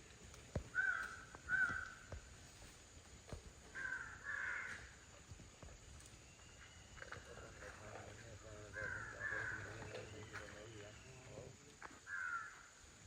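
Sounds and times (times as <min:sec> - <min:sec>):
bird calling: 0:00.7 - 0:02.1, 0:08.4 - 0:11.5.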